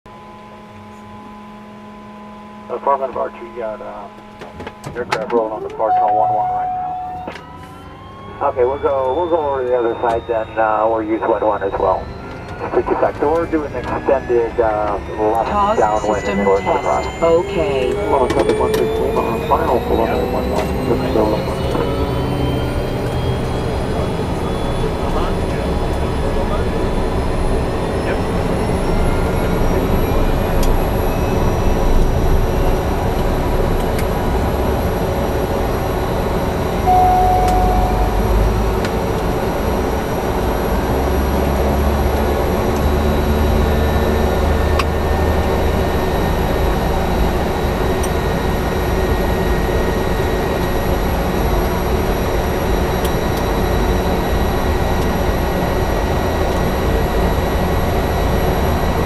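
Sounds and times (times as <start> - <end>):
turboprop engine rumble and whine: 0.1 - 59.0
short beep: 5.7 - 7.9, 15.0 - 22.6, 36.8 - 38.7.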